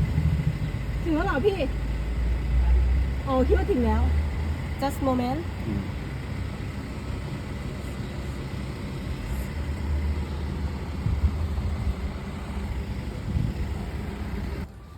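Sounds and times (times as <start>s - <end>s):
road noise: 0.0s - 14.9s
vehicle engine rumble: 0.0s - 14.9s.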